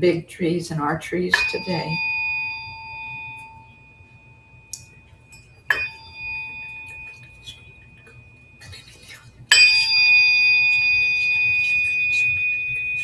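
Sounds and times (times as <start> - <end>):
tuning fork ringing: 1.3 - 13.0
tuning fork tap: 2.7 - 3.8, 4.7 - 8.7.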